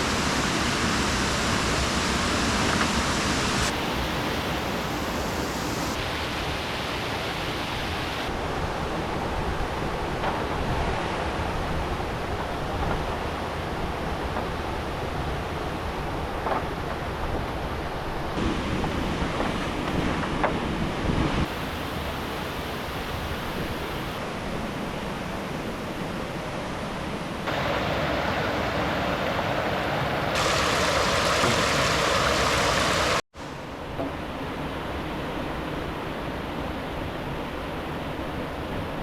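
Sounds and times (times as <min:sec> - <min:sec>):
river water flowing: 0:00.0 - 0:08.3, 0:27.4 - 0:33.5.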